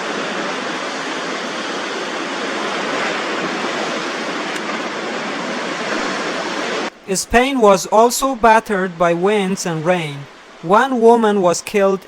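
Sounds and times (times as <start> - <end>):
violent storm rushing: 0.0 - 12.0.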